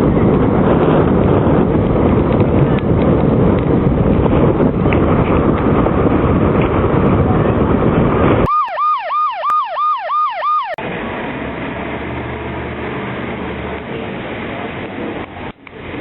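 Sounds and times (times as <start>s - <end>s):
wind and road noise: 0.0s - 16.0s
police siren yelping: 8.5s - 10.8s.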